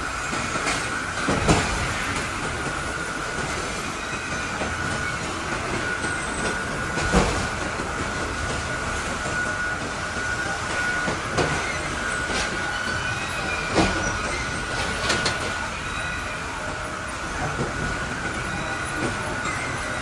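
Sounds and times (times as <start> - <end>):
wood processing machine whining: 0.0 - 20.0.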